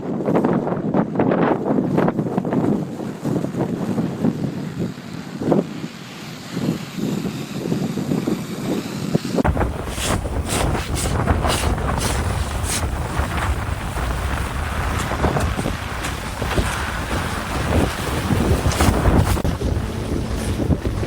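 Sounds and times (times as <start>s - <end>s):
hissing wind gusts: 0.0s - 21.0s
wind buffeting microphone: 0.0s - 21.0s
deep rumble: 9.4s - 21.0s.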